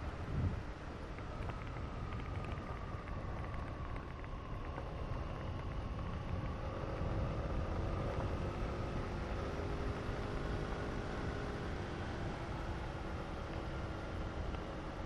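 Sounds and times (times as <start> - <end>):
wind on microphone: 0.2 - 0.6.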